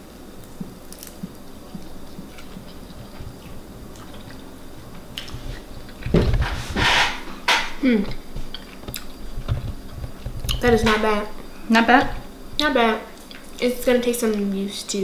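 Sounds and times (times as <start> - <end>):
chewing crispy food: 0.4 - 6.2, 8.1 - 11.0
rustling and handling noise: 0.5 - 12.6.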